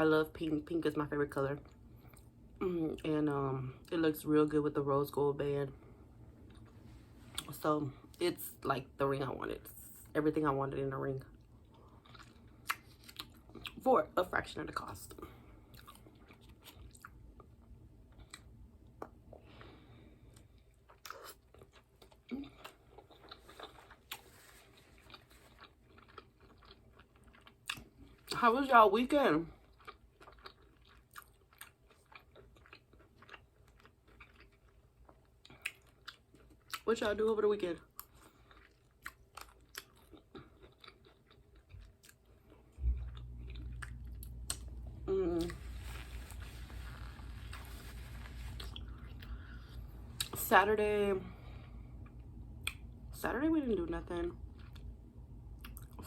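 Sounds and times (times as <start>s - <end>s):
person chewing food: 6.3s - 7.5s, 11.4s - 13.8s, 15.2s - 28.4s, 29.6s - 36.8s, 37.9s - 50.4s, 54.5s - 55.0s, 55.6s - 56.0s
steady low rumble: 42.4s - 56.0s.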